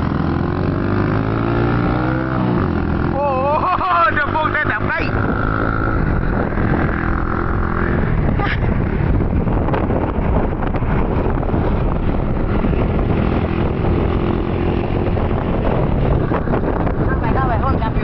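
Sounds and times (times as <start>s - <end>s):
wind rush on microphone: 0.0s - 18.0s.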